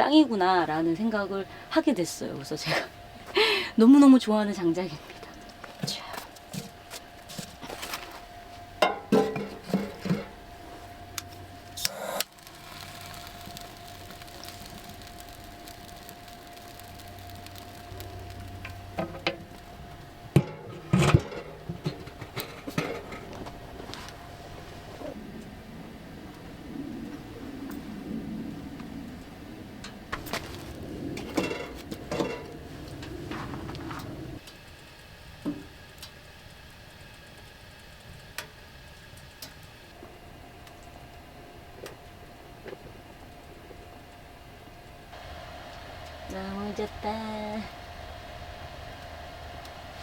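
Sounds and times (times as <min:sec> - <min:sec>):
faint hum: 0:00.0 - 0:50.0
firewood popping in a stove: 0:03.9 - 0:25.5, 0:28.8 - 0:50.0.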